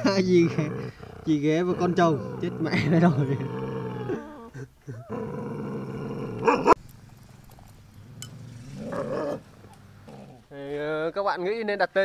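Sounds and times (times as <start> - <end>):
dog growling: 0.0 - 6.8, 8.0 - 10.5.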